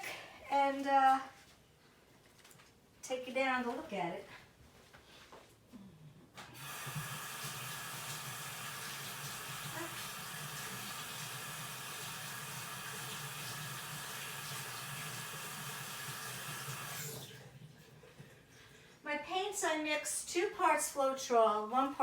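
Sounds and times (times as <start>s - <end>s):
tap running into sink: 6.6s - 17.3s.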